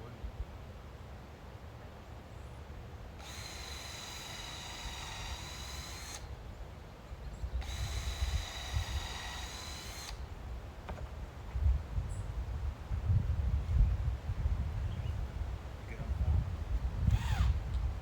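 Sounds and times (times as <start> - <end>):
power drill motor whine: 3.1 - 6.4, 7.6 - 11.1, 17.0 - 17.8.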